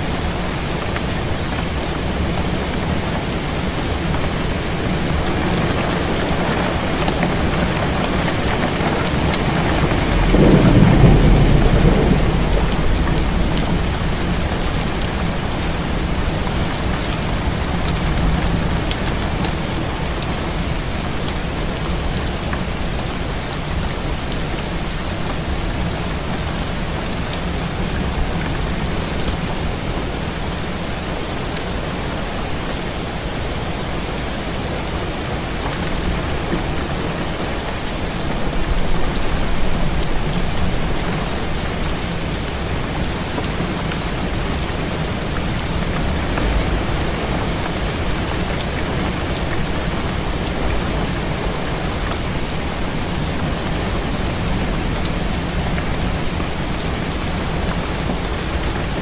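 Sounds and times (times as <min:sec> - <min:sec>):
heavy rain falling: 0:00.0 - 0:59.0
thunder rolling: 0:06.3 - 0:18.8, 0:38.3 - 0:42.2, 0:43.8 - 0:52.7.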